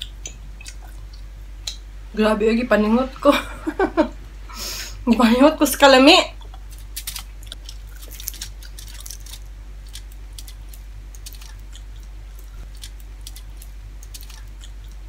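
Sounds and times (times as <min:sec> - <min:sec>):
close-up chewing: 0:00.0 - 0:01.3, 0:06.4 - 0:15.0
soft wet clicks and crackles: 0:00.0 - 0:01.8, 0:06.4 - 0:15.0
steady low hum: 0:00.0 - 0:15.0.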